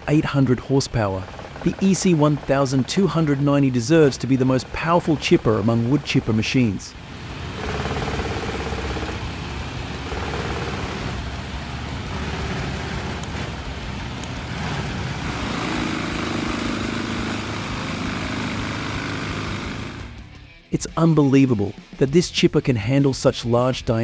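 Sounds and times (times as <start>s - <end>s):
wood chipper running: 1.2s - 20.4s.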